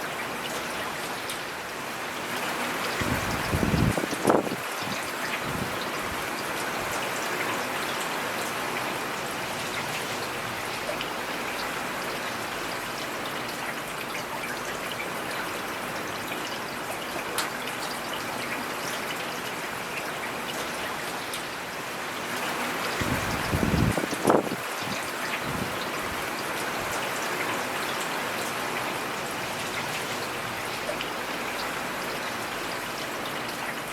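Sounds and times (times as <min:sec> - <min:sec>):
rain hissing: 0:22.8 - 0:27.0.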